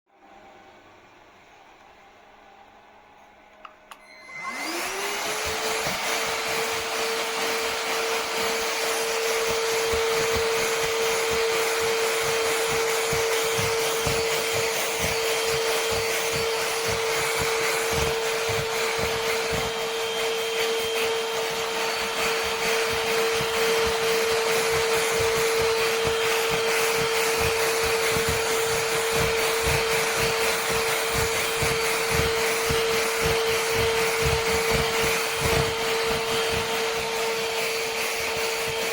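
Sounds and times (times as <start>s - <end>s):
stick vacuum motor whine: 3.3s - 38.9s.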